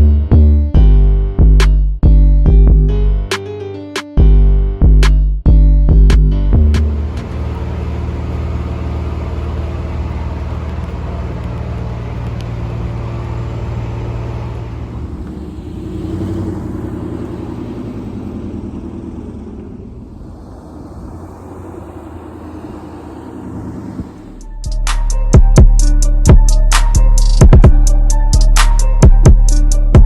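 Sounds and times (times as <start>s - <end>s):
car engine low rumble: 0.0s - 3.3s, 4.2s - 30.0s
electronic music: 24.4s - 30.0s.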